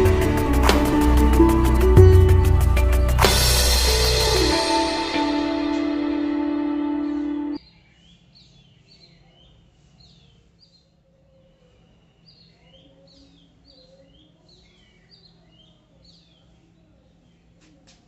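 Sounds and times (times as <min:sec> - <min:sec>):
small birds chirping: 0:07.6 - 0:17.7.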